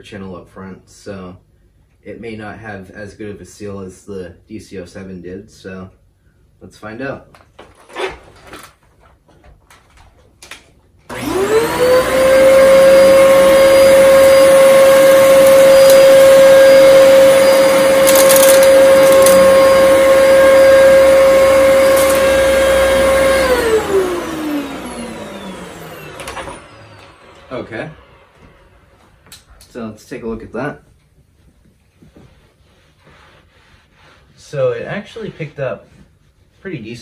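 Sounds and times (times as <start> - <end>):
vacuum cleaner motor whine: 11.1 - 29.3.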